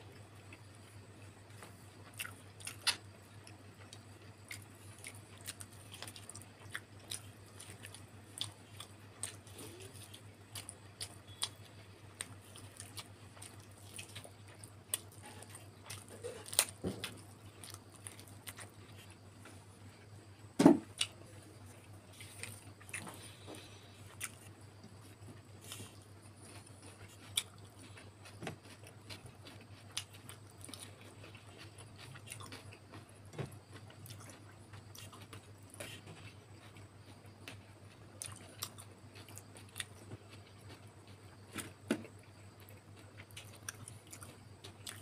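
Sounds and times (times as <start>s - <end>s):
steady low hum: 0.0s - 45.0s
person chewing food: 0.1s - 45.0s
dull knock: 20.6s - 20.8s.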